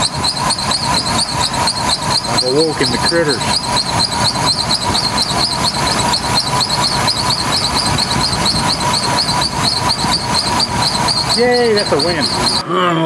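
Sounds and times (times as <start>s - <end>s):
car engine idling: 0.0s - 12.6s
belt chirping squeal: 0.0s - 12.7s.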